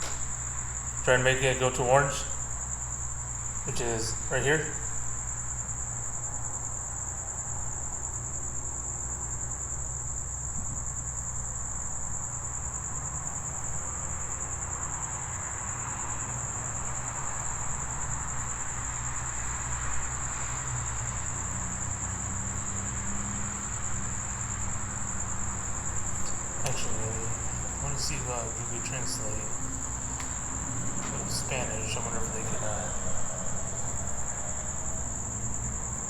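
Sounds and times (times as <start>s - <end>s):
crickets chirping: 0.0s - 36.0s
low steady hum: 25.6s - 36.0s.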